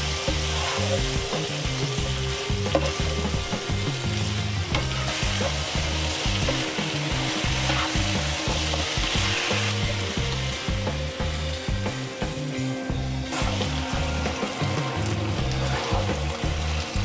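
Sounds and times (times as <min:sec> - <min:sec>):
spatula stirring: 0:00.0 - 0:10.4, 0:13.2 - 0:17.0
food sizzling in a wok: 0:00.0 - 0:17.0.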